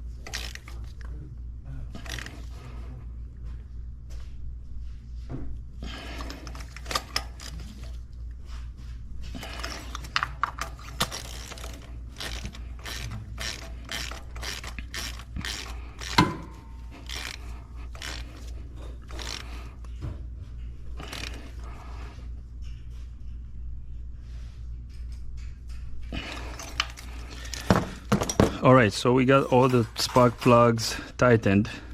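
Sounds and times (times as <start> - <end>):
socket ratchet clicking: 9.6 - 19.5.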